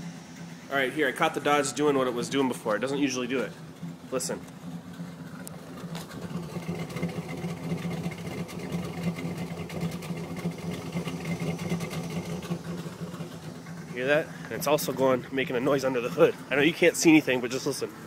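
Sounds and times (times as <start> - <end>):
truck engine idling roughly: 0.0 - 18.0.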